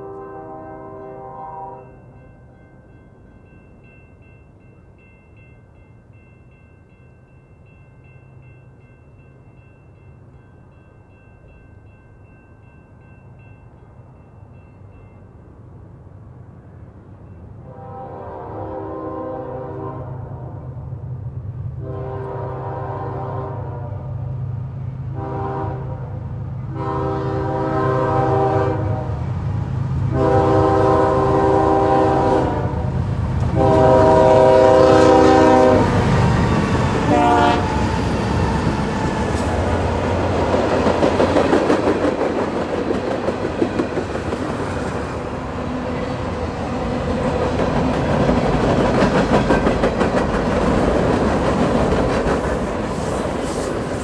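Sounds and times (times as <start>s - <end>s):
locomotive air horn chords: 0.0s - 2.0s, 17.6s - 20.8s, 21.8s - 24.2s, 25.1s - 29.3s, 30.1s - 36.0s, 37.0s - 37.9s
wheels clickety-clack on rail joints: 35.8s - 54.0s.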